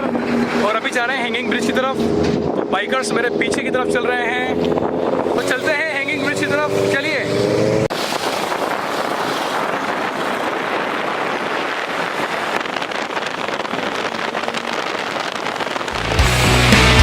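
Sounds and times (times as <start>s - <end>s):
wind rushing over microphone: 0.0s - 16.2s
rock music: 15.9s - 17.0s.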